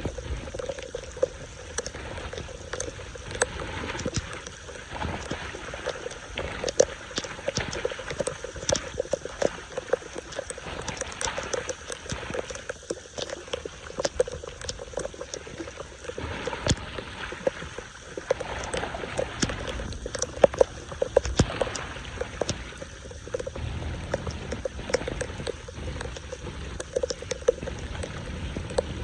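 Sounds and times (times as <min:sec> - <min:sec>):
running water: 0:00.0 - 0:29.0
water splashing: 0:00.0 - 0:29.0.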